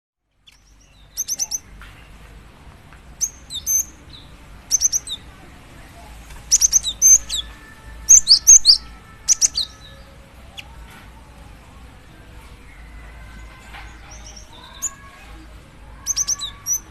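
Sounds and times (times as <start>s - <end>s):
bird quick high chirps: 6.5s - 7.5s.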